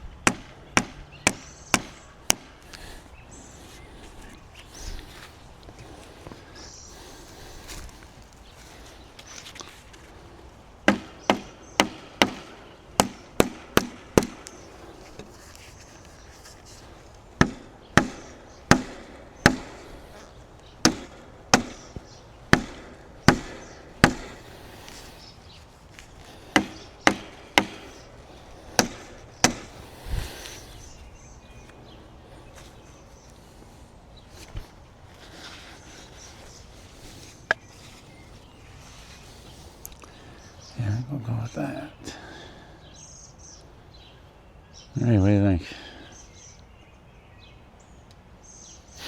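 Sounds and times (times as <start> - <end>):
hammer striking wood: 0.2 - 2.6, 10.9 - 15.3, 17.4 - 19.9, 20.8 - 24.6, 26.4 - 28.1, 28.7 - 29.8.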